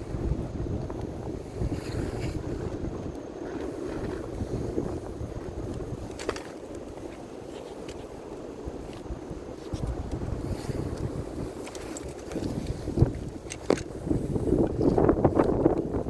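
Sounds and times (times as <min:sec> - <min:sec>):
bonfire roaring and crackling: 0:00.0 - 0:07.5.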